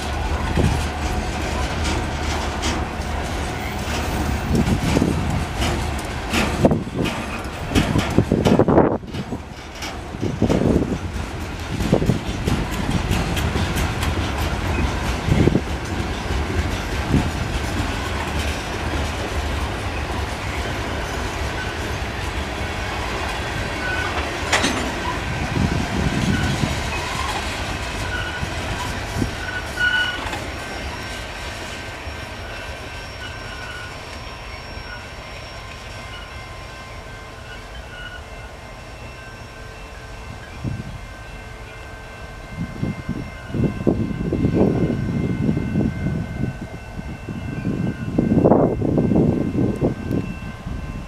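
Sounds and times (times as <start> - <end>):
train wheels clacking over rail joints: 0.0 - 34.2
high wheel squeals: 23.6 - 39.7.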